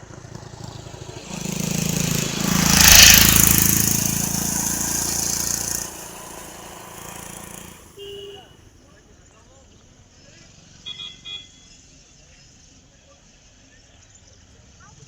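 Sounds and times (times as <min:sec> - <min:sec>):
vehicle engine passing by: 0:00.0 - 0:08.3.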